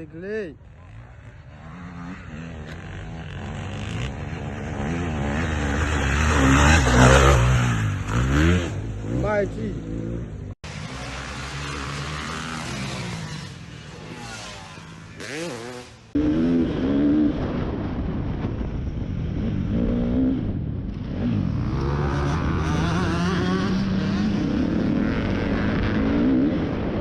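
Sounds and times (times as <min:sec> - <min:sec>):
motocross bike engines revving: 0:00.0 - 0:17.7, 0:19.4 - 0:27.0.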